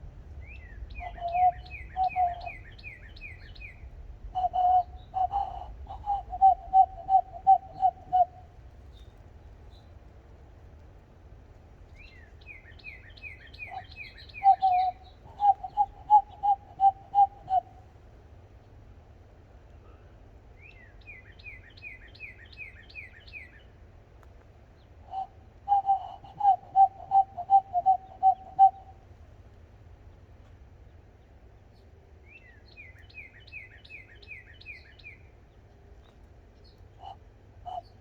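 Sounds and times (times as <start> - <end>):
bird repeated lower notes: 1.0 - 3.0, 4.4 - 8.4, 13.6 - 17.8, 25.1 - 28.9, 37.0 - 38.0.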